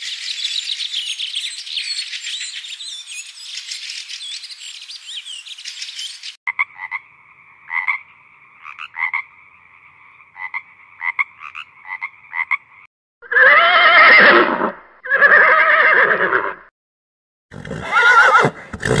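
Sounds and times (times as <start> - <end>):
frog chorus: 6.5 - 12.9
frog croaking: 6.5 - 12.9
horse whinnying: 13.2 - 16.7, 17.5 - 19.0.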